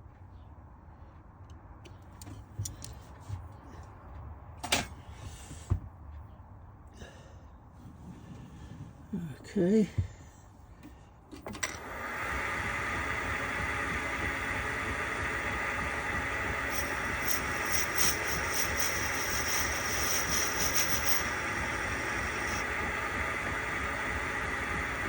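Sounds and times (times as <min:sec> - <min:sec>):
machine tool humming: 0:11.8 - 0:25.0
high whine of tool cutting metal: 0:12.6 - 0:25.0.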